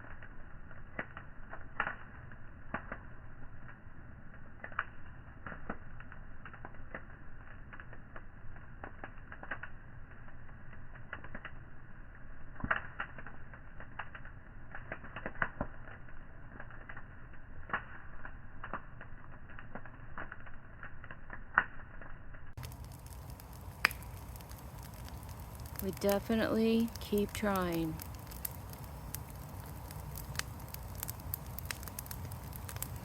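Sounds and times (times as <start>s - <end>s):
fire crackling and popping: 0.0s - 33.0s
low steady hiss: 22.6s - 33.0s.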